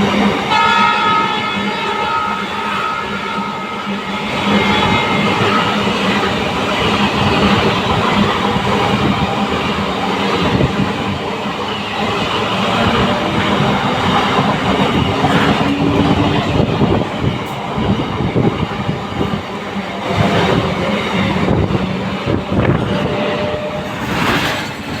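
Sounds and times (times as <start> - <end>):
train running on rails: 0.0 - 25.0.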